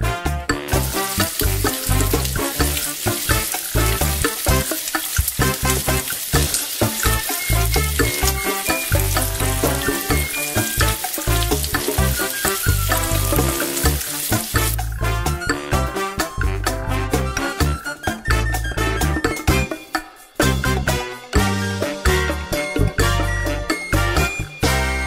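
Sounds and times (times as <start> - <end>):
music with a steady beat: 0.0 - 25.0
vegetables sizzling in oil: 0.7 - 14.9
wooden spoon stirring: 0.7 - 14.9.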